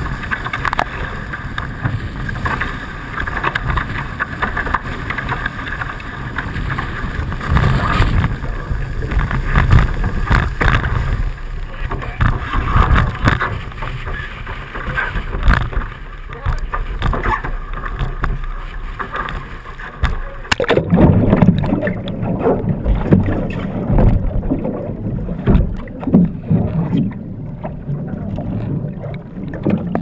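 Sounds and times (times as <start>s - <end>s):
wind buffeting the microphone: 0.0s - 18.4s
water splashing along hulls: 0.0s - 30.0s.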